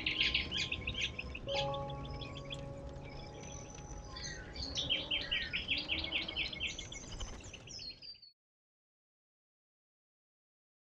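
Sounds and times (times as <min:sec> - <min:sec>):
low outdoor background noise: 0:00.0 - 0:08.1
birds chirping rapidly: 0:00.0 - 0:08.3.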